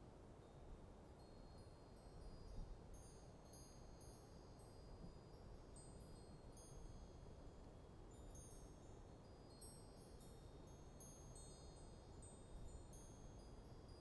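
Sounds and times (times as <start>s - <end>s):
wind chimes tinkling: 8.1s - 14.0s.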